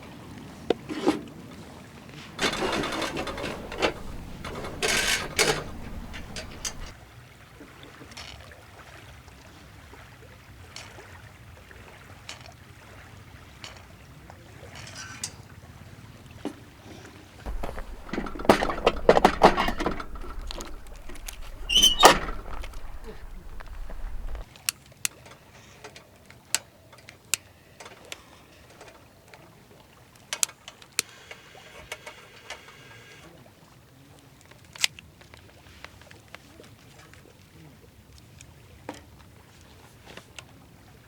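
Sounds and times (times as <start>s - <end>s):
rustling handling noise: 2.4s - 7.0s, 17.5s - 24.5s.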